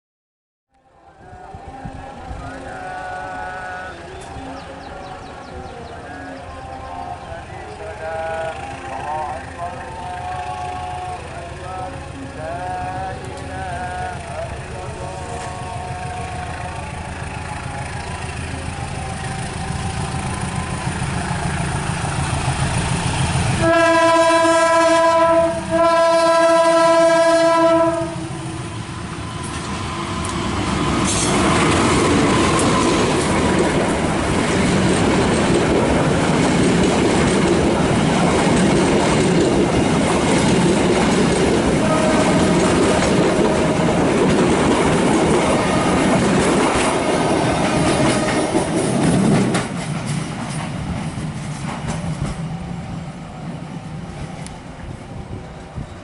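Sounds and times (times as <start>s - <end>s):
train rumble: 0.9s - 56.0s
train wagons rolling by: 1.2s - 56.0s
train horn blasts: 1.3s - 5.2s, 8.1s - 12.2s, 23.5s - 33.7s, 41.4s - 48.8s.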